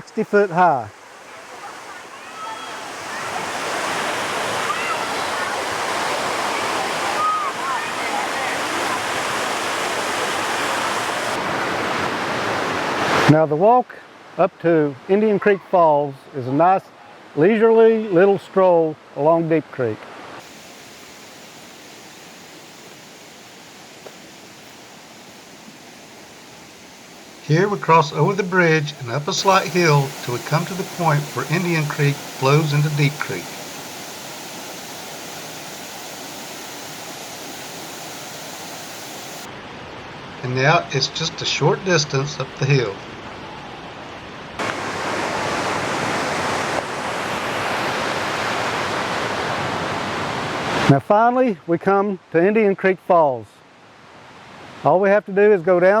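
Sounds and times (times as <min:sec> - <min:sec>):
creek rushing: 0:00.9 - 0:13.4, 0:20.1 - 0:39.6, 0:44.6 - 0:50.9.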